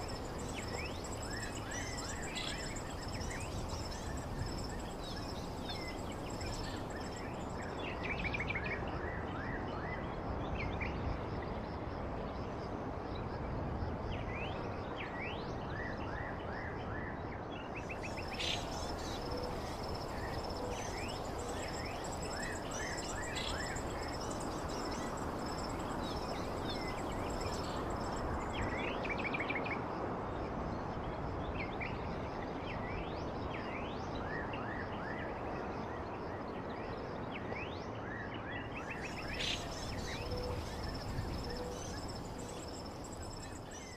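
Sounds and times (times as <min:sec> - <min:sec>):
bird chirps: 0:00.0 - 0:07.5, 0:17.9 - 0:29.0, 0:38.9 - 0:43.9
background hiss: 0:00.0 - 0:08.0, 0:17.9 - 0:29.3, 0:38.9 - 0:43.9
high-pitched insect-like whine: 0:00.0 - 0:08.0, 0:18.0 - 0:29.2, 0:38.9 - 0:43.9.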